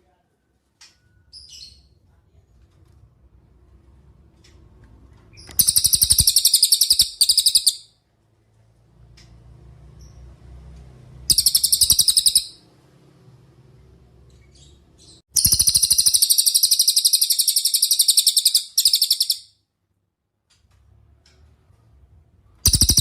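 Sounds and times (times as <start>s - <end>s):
songbird trilling: 5.4s - 7.9s, 11.3s - 12.6s, 15.4s - 19.5s, 22.7s - 23.0s.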